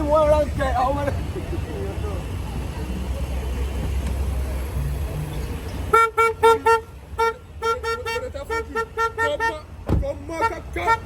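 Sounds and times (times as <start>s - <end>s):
car horn short blasts: 5.9s - 9.7s.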